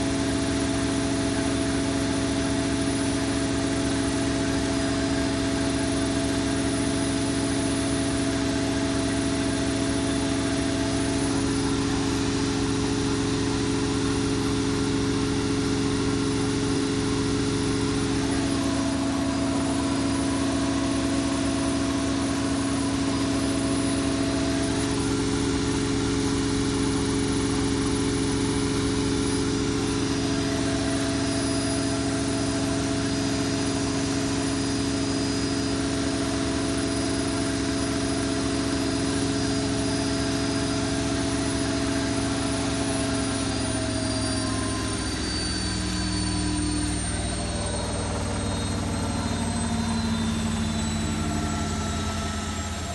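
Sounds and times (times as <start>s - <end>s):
washing machine spinning: 0.0s - 52.9s.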